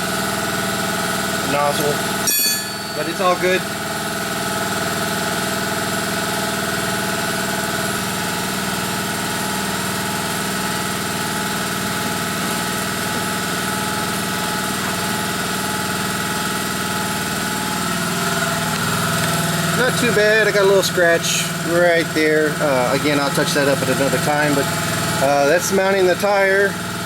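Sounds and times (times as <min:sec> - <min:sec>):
motor humming: 0:10.0 - 0:27.0.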